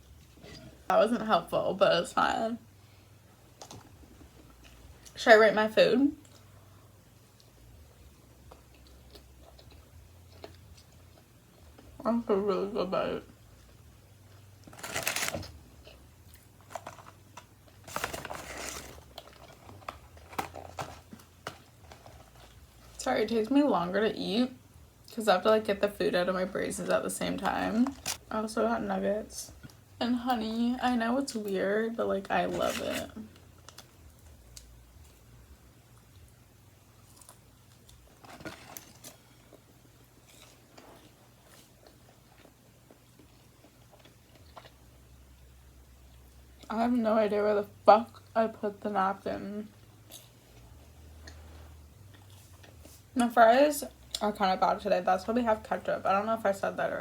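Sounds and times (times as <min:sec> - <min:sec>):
chewing: 0:08.4 - 0:11.9, 0:36.9 - 0:44.9, 0:50.0 - 0:53.0
food wrapping crinkling: 0:14.4 - 0:23.0, 0:27.4 - 0:28.3, 0:32.4 - 0:34.6, 0:37.0 - 0:42.5.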